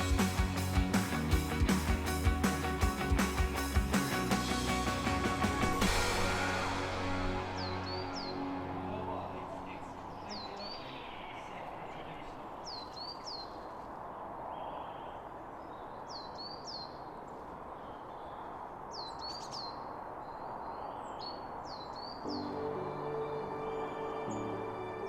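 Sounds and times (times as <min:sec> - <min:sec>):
music: 0:00.0 - 0:10.2, 0:22.3 - 0:25.0
outdoor noise haze: 0:00.0 - 0:25.0.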